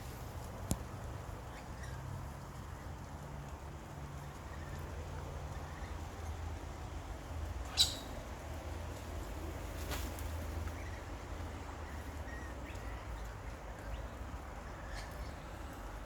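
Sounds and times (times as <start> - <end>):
birds chirping: 7.6 - 8.2.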